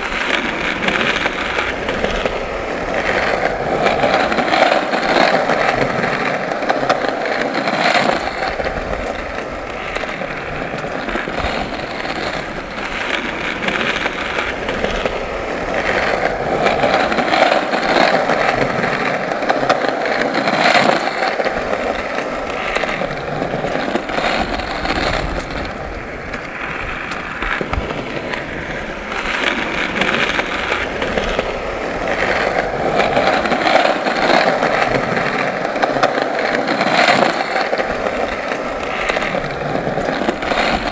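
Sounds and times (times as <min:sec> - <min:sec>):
skateboard clacking: 0:00.0 - 0:40.9
skateboard wheels rolling on pavement: 0:00.0 - 0:40.9.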